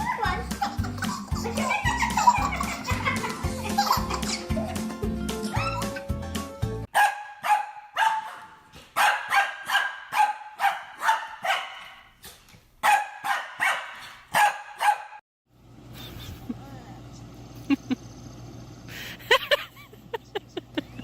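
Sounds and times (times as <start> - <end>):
dog barking: 6.9 - 12.1, 12.8 - 15.2.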